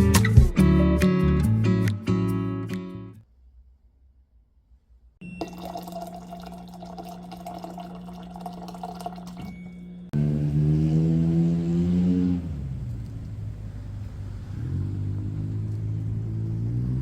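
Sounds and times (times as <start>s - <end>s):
water running: 5.2s - 10.0s.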